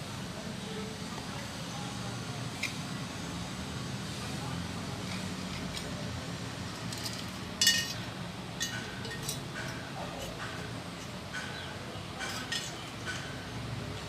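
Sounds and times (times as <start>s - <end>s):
small steel utensils clinking: 6.8s - 8.0s, 8.6s - 10.4s, 12.2s - 13.3s.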